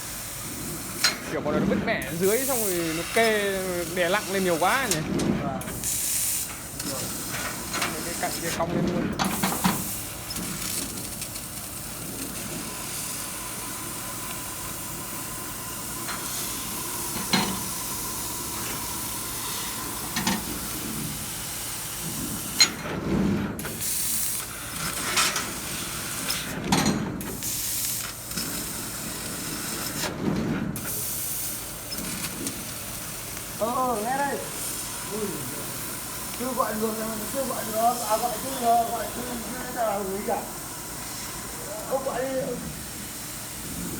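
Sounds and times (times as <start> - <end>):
assist gas hissing: 2.0 - 5.0, 5.7 - 8.6, 30.8 - 43.9.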